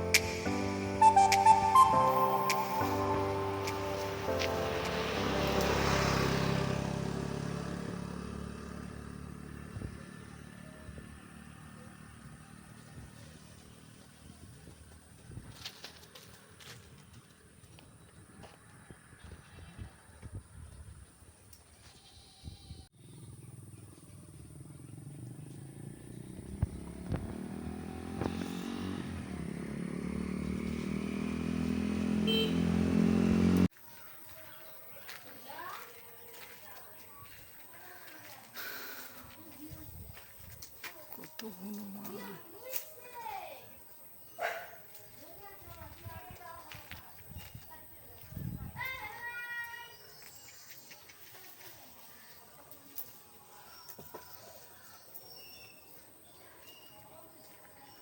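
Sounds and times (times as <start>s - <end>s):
vehicle engine moving away: 0.0s - 20.8s, 21.7s - 33.7s.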